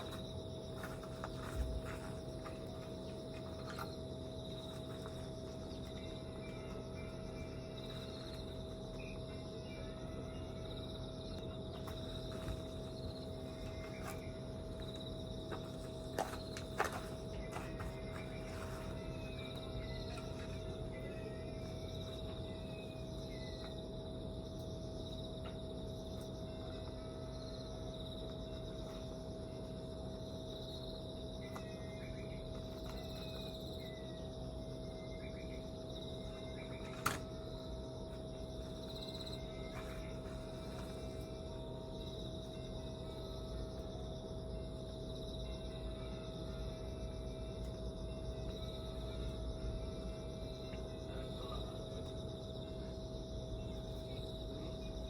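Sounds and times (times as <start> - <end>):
faint high pulsing trill: 0.0 - 25.3
high-pitched insect trill: 0.0 - 55.0
steady background hum: 0.0 - 55.0.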